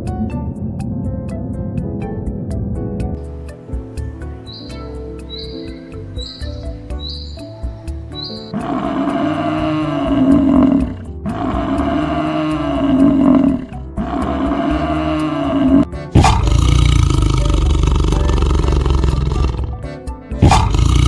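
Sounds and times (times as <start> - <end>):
background music: 0.0 - 21.0
large animal calling: 4.5 - 7.5, 8.2 - 21.0.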